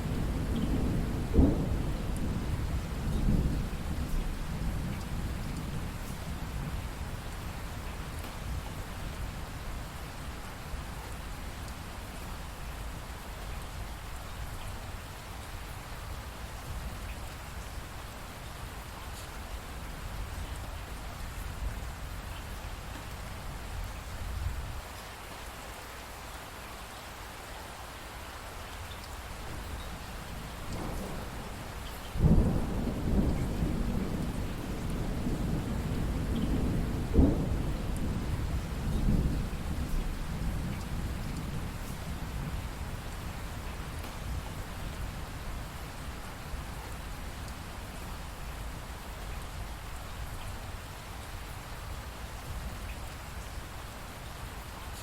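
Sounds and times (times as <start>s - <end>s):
thunder rumbling: 0.0s - 6.8s, 29.4s - 48.3s
steady rainfall: 0.0s - 55.0s
raindrops ticking: 28.9s - 42.2s
thunder crack: 30.6s - 39.9s.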